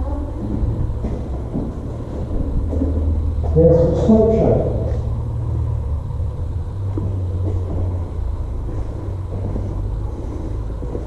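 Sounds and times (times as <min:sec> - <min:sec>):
steady low rumble: 0:00.0 - 0:11.0
faint knocks and taps: 0:00.4 - 0:03.6, 0:06.9 - 0:11.0.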